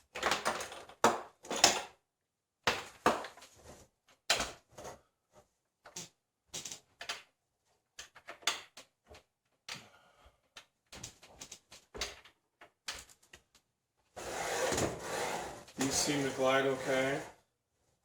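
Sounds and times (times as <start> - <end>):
saw head sliding on rails: 14.2 - 17.3.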